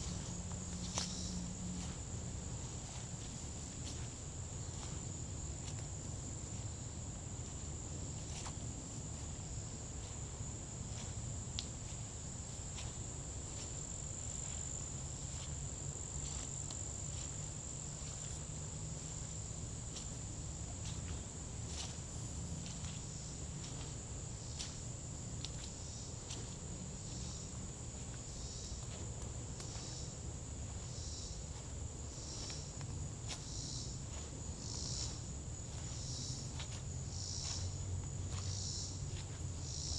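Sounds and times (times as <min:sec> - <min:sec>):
crickets trilling: 0:00.0 - 0:39.9
footsteps crunching on forest path: 0:00.0 - 0:39.9
pulsing insect call: 0:29.6 - 0:39.9.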